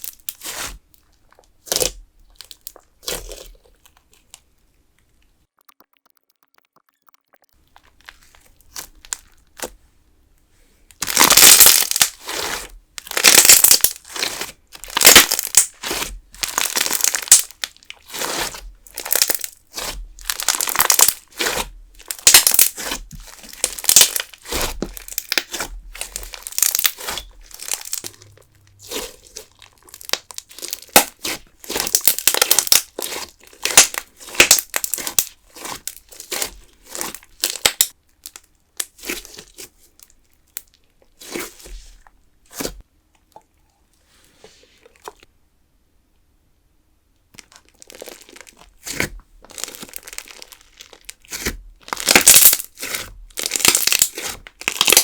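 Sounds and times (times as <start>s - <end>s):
slime crackling when squeezed: 11.0s - 39.2s, 49.5s - 55.0s.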